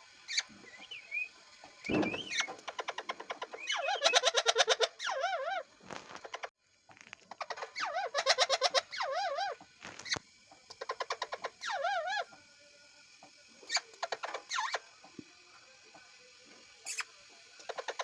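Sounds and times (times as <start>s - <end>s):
parrot warbling calls: 1.9s - 5.7s, 7.4s - 9.6s.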